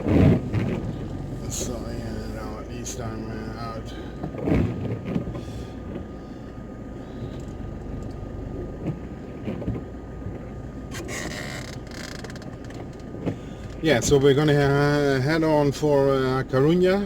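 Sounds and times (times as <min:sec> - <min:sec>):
engine and road noise: 0:00.0 - 0:17.0.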